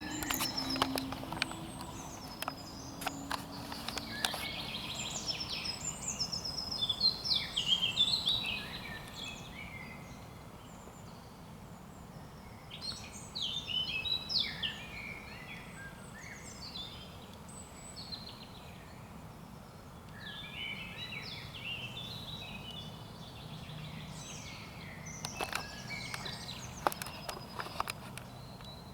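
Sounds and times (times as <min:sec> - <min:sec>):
songbirds warbling: 0:00.0 - 0:10.7, 0:20.2 - 0:28.9.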